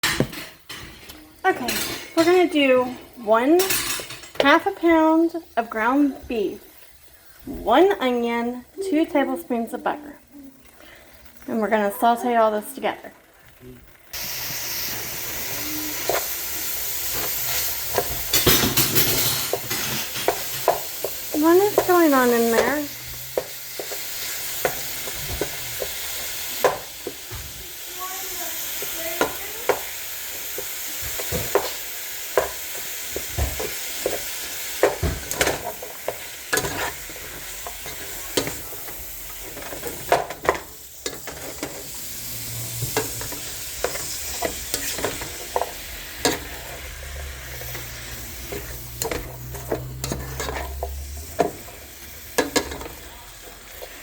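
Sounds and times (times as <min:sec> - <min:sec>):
meat sizzling in a frying pan: 0:00.0 - 0:54.0
utensil scraping a pan: 0:28.6 - 0:54.0.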